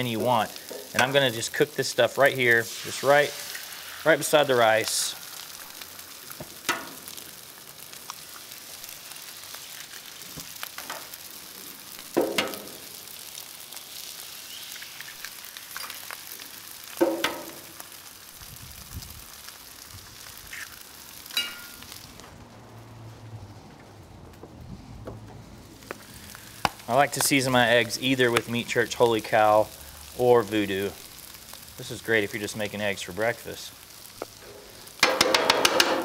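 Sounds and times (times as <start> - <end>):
food sizzling on a griddle: 0.0 - 23.2, 25.7 - 36.0
eggs cracked onto hot surface: 5.4 - 7.3, 12.0 - 13.0, 16.9 - 17.9, 25.9 - 27.4, 34.1 - 36.0.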